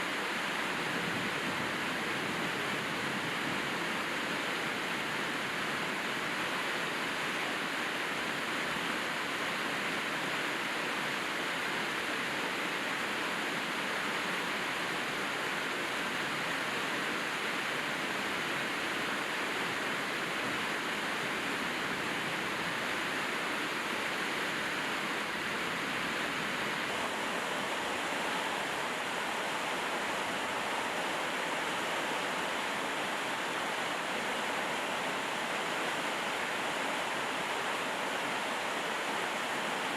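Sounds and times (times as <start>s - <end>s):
rain falling: 18.0s - 39.9s.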